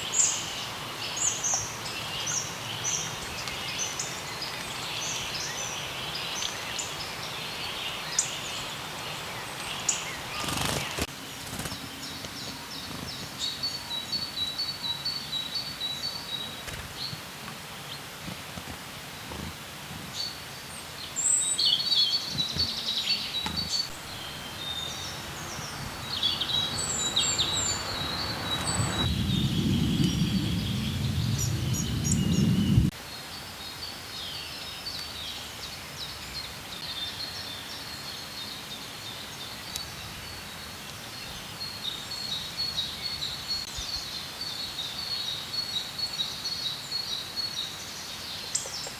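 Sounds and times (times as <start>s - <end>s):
songbirds chirping: 0.0s - 48.9s
low rumbling noise: 23.7s - 32.9s.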